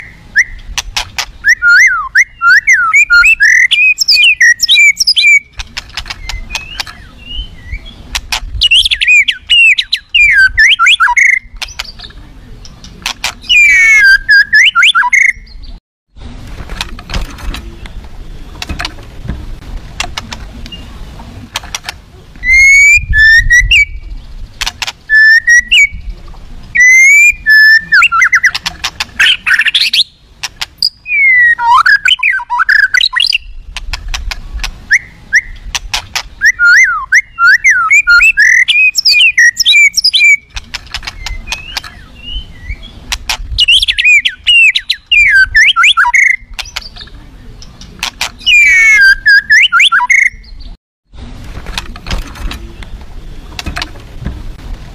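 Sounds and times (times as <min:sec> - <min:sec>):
bird singing whistled phrases: 0:00.0 - 0:00.6, 0:01.4 - 0:05.5, 0:08.6 - 0:12.0, 0:13.4 - 0:15.7, 0:22.4 - 0:24.1, 0:25.1 - 0:26.1, 0:26.8 - 0:28.6, 0:29.2 - 0:30.2, 0:30.8 - 0:33.6, 0:34.9 - 0:35.6, 0:36.4 - 0:40.5, 0:41.2 - 0:43.0, 0:43.6 - 0:47.0, 0:48.4 - 0:50.7
fast chattering bird notes: 0:00.0 - 0:15.4, 0:21.5 - 0:50.4
sharp clicks: 0:03.5 - 0:07.0, 0:24.6 - 0:25.0, 0:38.4 - 0:42.0, 0:46.2 - 0:48.4.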